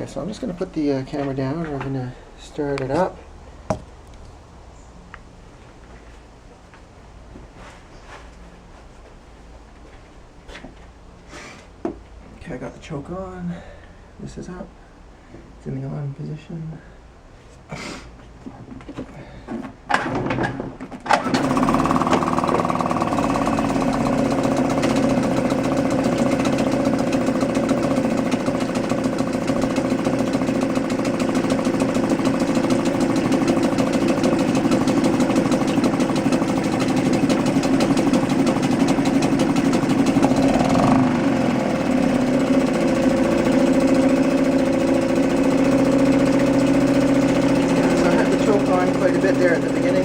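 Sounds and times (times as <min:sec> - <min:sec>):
outboard pull starter bursts: 0:21.0 - 0:50.0
outboard engine running: 0:21.2 - 0:50.0.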